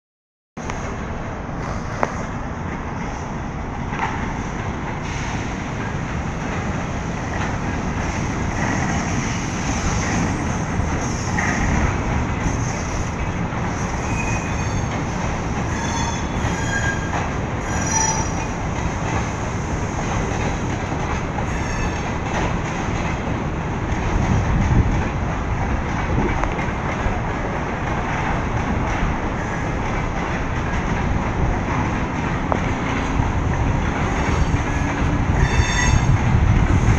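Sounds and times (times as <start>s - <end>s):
train rumbling on rails: 0.6s - 36.9s
high wheel squeals: 13.7s - 18.6s, 21.5s - 22.1s, 34.1s - 36.4s.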